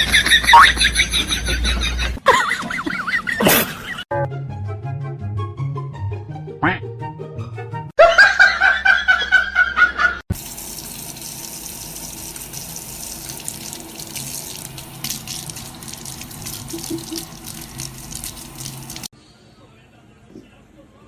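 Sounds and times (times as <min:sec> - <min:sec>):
water running: 0:00.0 - 0:03.9, 0:10.3 - 0:19.1.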